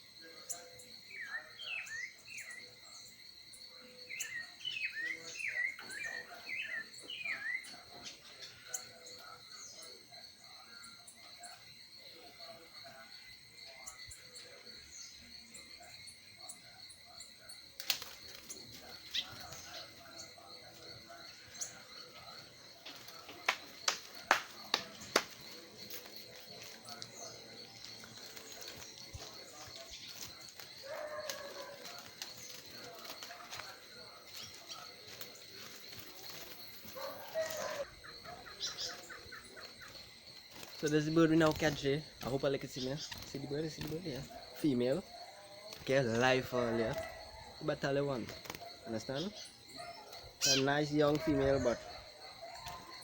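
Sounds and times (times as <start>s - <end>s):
insects droning: 0.0s - 53.0s
small bird chirping: 13.7s - 50.8s.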